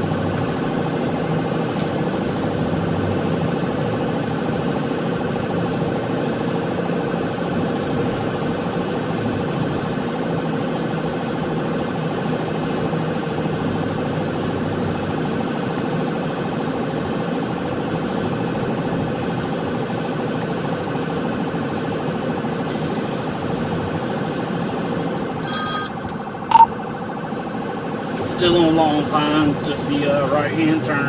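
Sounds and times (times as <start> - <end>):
car engine and road noise: 0.0 - 31.0
police siren: 25.2 - 29.4.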